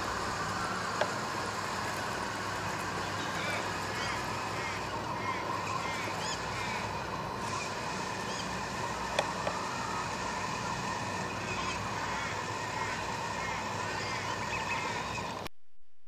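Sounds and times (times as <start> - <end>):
steady hiss and hum: 0.0 - 15.5
birds chirping: 2.8 - 15.4.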